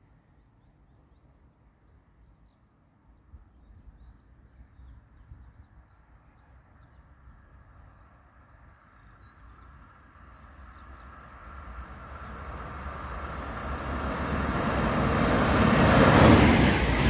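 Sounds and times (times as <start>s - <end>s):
faint birds chirping: 0.1s - 16.8s
faint high whine: 7.4s - 17.0s.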